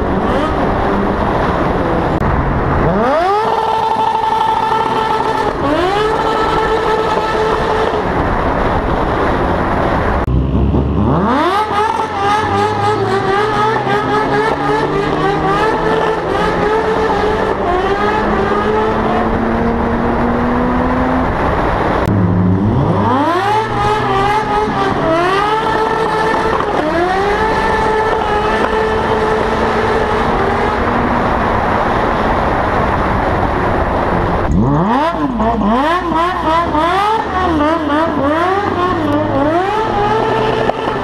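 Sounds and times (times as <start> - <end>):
sport motorcycle engine revving: 2.8 - 8.2, 10.2 - 21.4, 22.0 - 31.6, 34.4 - 41.0.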